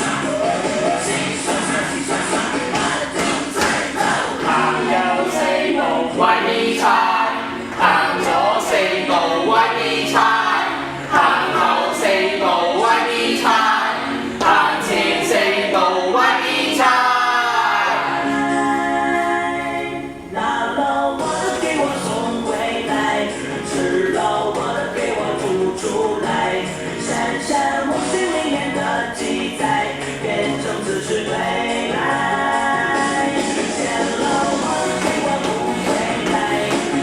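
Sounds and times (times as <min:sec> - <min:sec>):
music with steady beat: 0:00.0 - 0:15.8, 0:17.6 - 0:37.0
group singing pop song: 0:00.0 - 0:37.0.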